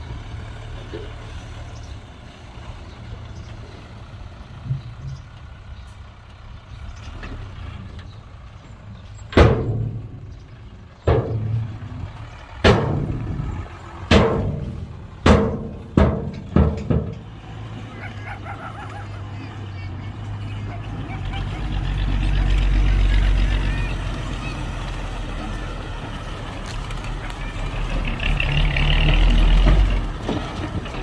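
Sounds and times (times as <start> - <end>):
diesel engine running: 0.0 - 31.0
loud bangs: 12.6 - 17.3.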